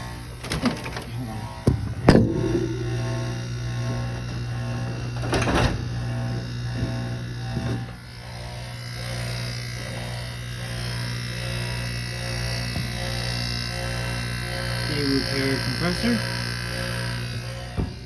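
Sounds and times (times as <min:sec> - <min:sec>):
air conditioner compressor hum: 0:00.0 - 0:18.0.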